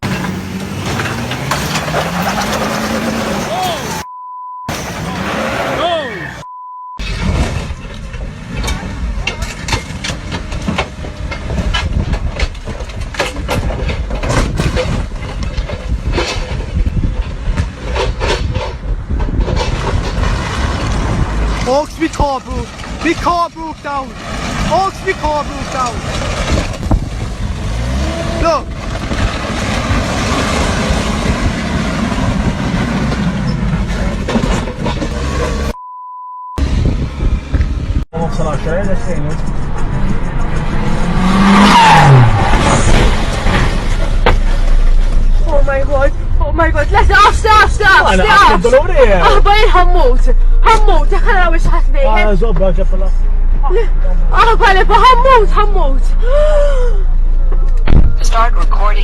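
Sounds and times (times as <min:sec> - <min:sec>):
vehicle rumble: 0:00.0 - 0:59.0
steady high beep: 0:04.0 - 0:04.7, 0:06.4 - 0:07.0, 0:35.8 - 0:36.6
sharp knocks and rattles: 0:07.0 - 0:35.7.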